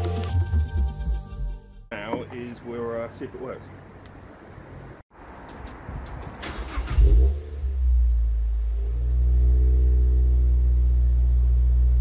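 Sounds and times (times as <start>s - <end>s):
car engine cranking and idling: 6.2s - 12.0s.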